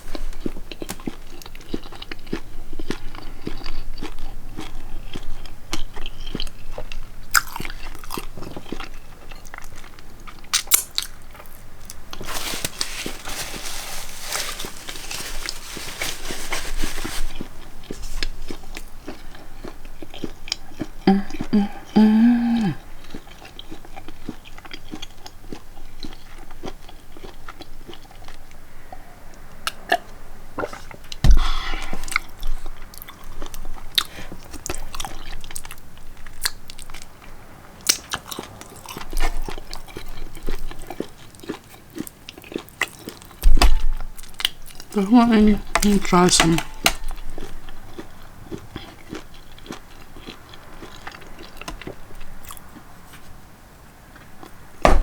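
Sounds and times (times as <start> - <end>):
person chewing food: 0.0 - 53.4
thump: 31.2 - 31.6.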